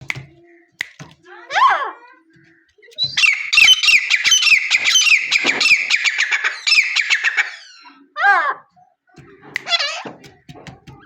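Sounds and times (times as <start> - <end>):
francolin calling: 2.4 - 8.1.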